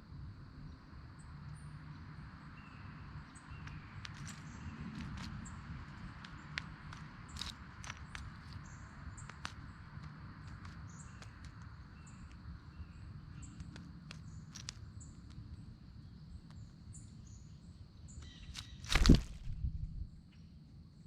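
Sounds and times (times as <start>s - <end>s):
small birds chirping: 0.6s - 20.4s.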